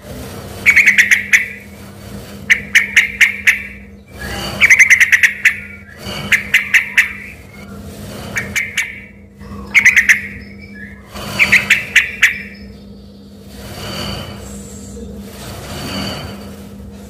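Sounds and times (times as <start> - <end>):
steady low hum: 0.0 - 17.0
bird singing sharp notes: 0.7 - 1.6, 2.5 - 7.6, 8.4 - 13.0.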